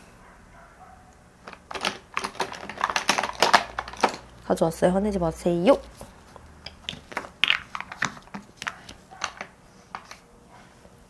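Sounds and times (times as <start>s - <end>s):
plastic items clicking and tapping: 1.4s - 4.4s, 6.6s - 10.2s.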